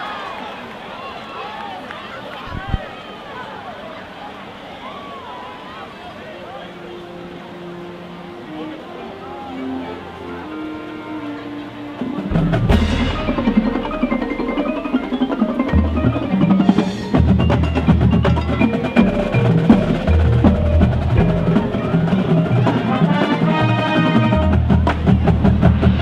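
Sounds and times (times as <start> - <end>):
low brass notes: 6.4 - 26.0
marching band playing: 6.7 - 26.0
drums: 11.9 - 26.0
marimba and xylophone: 12.0 - 26.0.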